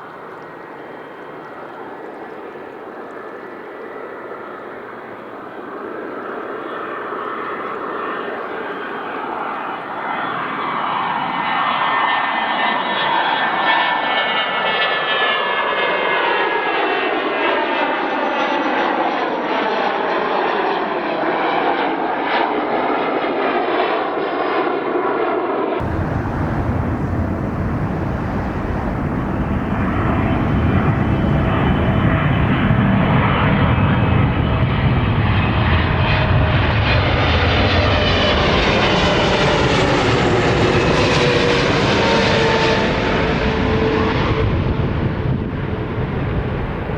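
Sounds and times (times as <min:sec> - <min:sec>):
jet deep rumble: 0:25.8 - 0:46.9
jet engines whining: 0:25.8 - 0:46.9.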